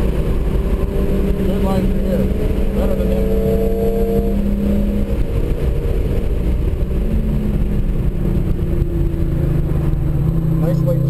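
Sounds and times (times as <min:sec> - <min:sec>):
car engine pulling hard: 0:00.0 - 0:11.0
road and wind noise: 0:00.0 - 0:11.0.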